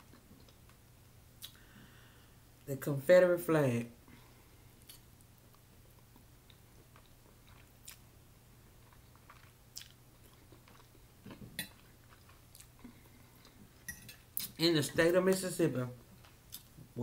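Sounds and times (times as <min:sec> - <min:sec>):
soft mouth clicks: 0:01.4 - 0:01.6, 0:04.8 - 0:05.0
faint chewing: 0:04.8 - 0:08.0, 0:08.7 - 0:14.6.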